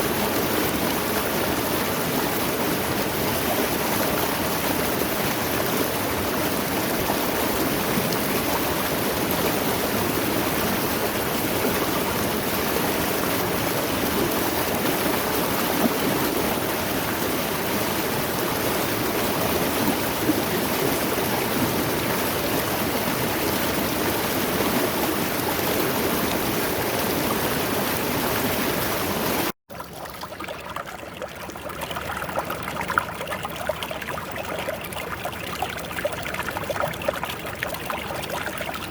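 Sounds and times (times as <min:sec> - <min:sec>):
stream rushing over rocks: 0:00.0 - 0:29.6
stream trickling: 0:00.0 - 0:38.9.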